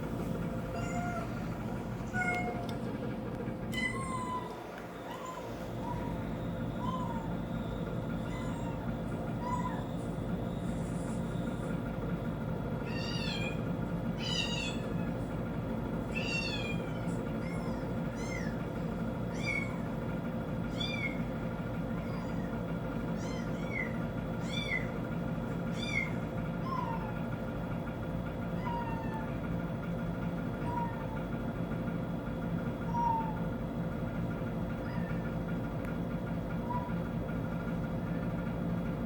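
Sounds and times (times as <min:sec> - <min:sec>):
kitten mewing: 0:00.7 - 0:02.8, 0:03.7 - 0:07.4, 0:08.2 - 0:10.0, 0:14.2 - 0:15.2, 0:16.1 - 0:18.6, 0:19.3 - 0:19.8, 0:21.9 - 0:25.0, 0:25.7 - 0:27.3, 0:28.5 - 0:29.4, 0:30.6 - 0:31.2, 0:32.8 - 0:33.4, 0:34.8 - 0:35.5, 0:36.6 - 0:37.0.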